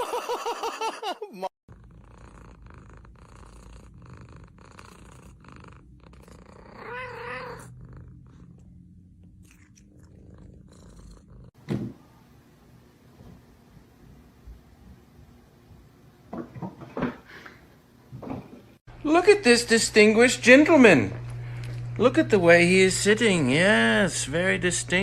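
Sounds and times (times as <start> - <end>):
cat purring: 1.7 - 11.6
thump: 11.6 - 12.0.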